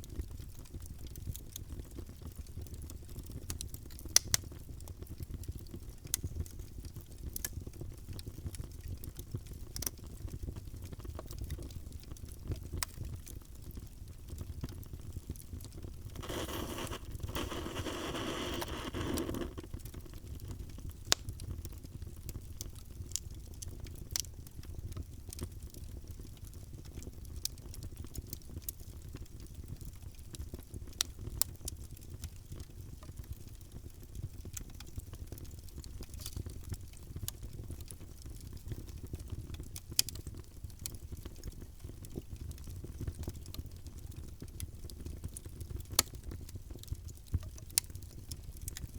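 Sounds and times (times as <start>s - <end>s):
wood fire crackling: 0.1s - 48.9s
rushing hiss: 16.2s - 19.6s.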